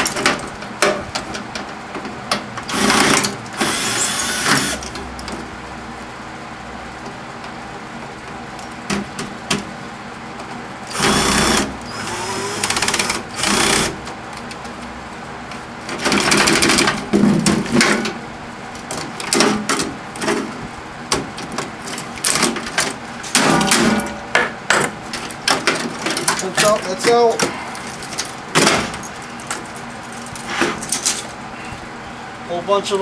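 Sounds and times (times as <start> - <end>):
cordless drill running: 2.7 - 4.8, 10.8 - 14.0
low hum: 23.1 - 26.1.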